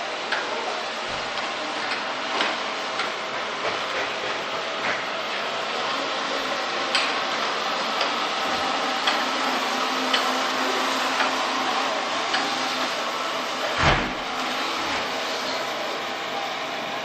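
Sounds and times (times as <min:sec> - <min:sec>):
robot vacuum whirring: 0:01.3 - 0:17.0
thump: 0:13.8 - 0:14.2.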